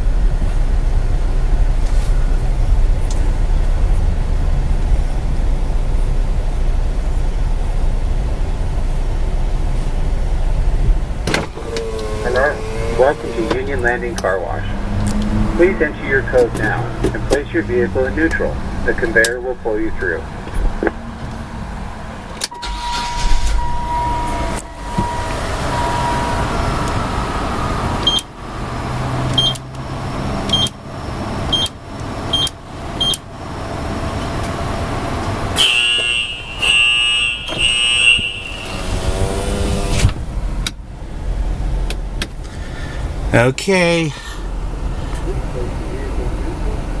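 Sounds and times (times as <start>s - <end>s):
car wash machinery running: 0.0s - 20.5s, 21.8s - 35.7s
loud buzzing tone: 11.5s - 13.8s, 22.5s - 29.5s, 35.6s - 40.1s
short high beeps with clicks: 28.0s - 28.2s, 29.4s - 29.6s.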